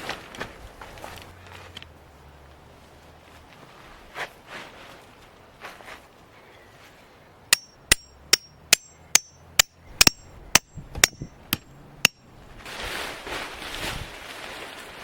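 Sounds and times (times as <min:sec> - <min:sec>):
hammer striking metal: 0:07.5 - 0:12.2.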